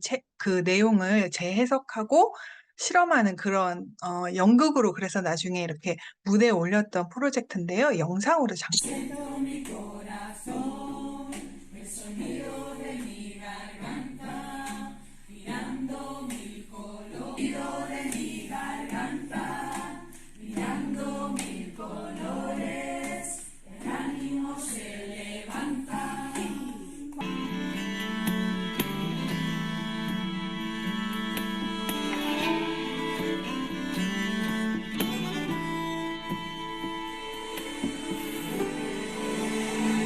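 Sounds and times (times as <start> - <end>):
group singing without instruments: 8.8 - 27.9, 31.4 - 40.0.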